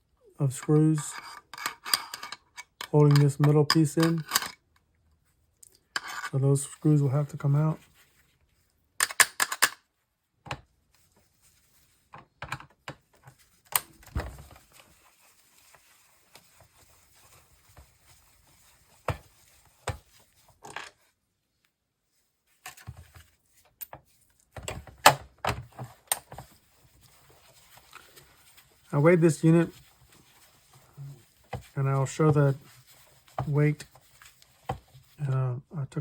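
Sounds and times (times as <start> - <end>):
screwdriver and screws clicking on plastic: 9.0 - 9.8.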